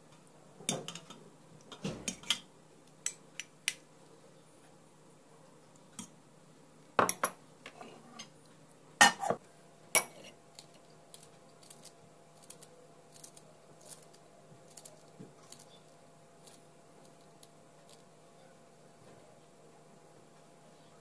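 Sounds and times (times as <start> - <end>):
dishes and cutlery clinking: 9.0 - 9.4.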